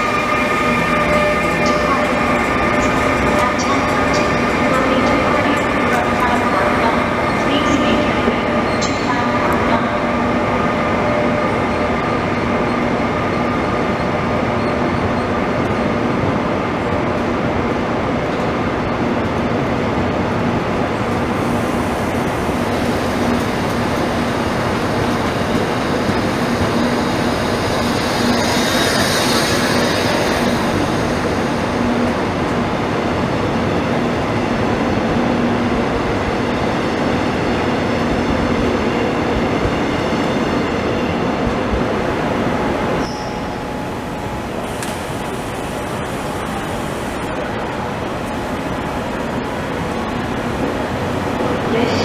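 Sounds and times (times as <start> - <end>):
train wheels rumbling on rails: 0.0 - 52.0.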